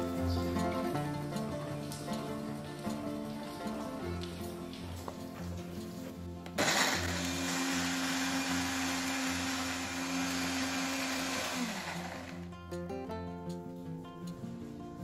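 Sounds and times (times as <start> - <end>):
electric blender motor whining: 6.6 - 12.5.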